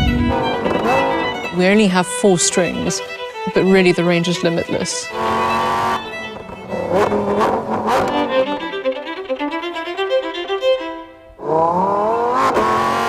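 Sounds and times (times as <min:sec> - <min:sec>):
solo violin: 0:00.0 - 0:12.8
car engine accelerating: 0:00.0 - 0:13.0.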